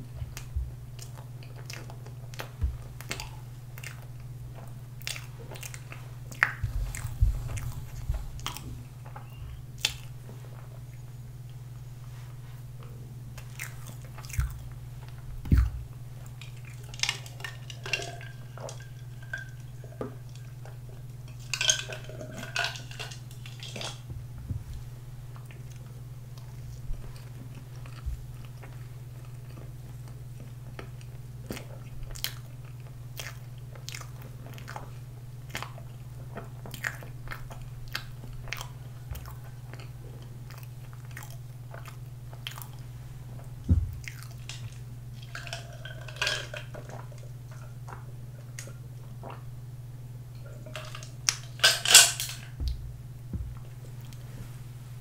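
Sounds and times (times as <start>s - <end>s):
close chewing with mouth clicks: 0.0s - 11.6s, 12.8s - 21.3s, 25.3s - 46.1s, 46.8s - 49.6s
steady low hum: 0.0s - 55.0s.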